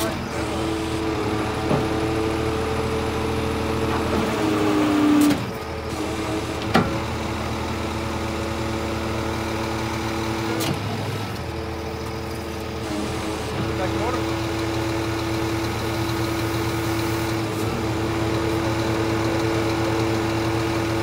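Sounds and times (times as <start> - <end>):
truck engine running: 0.0 - 21.0.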